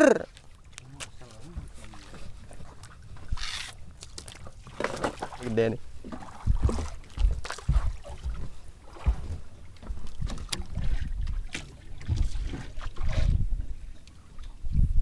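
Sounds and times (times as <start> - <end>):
wind buffeting microphone: 6.0 - 15.0.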